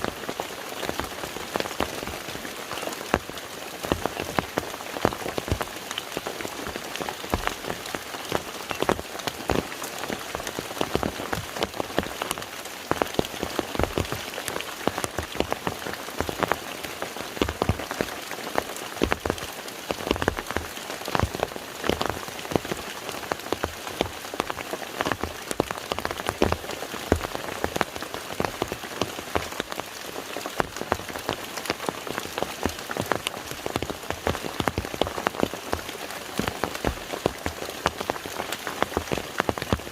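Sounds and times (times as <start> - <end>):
rain on a lake: 0.0 - 39.9.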